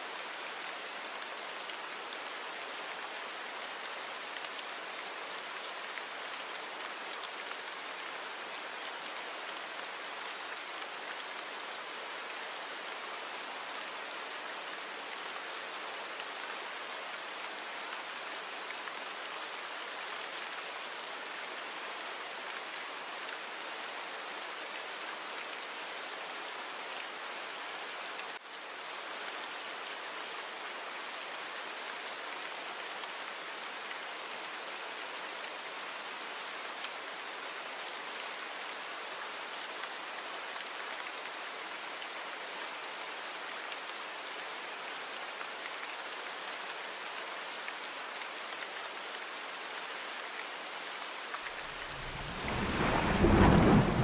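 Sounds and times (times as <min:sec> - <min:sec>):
steady rain falling: 0:00.0 - 0:54.0
low thunder rumble: 0:51.8 - 0:54.0.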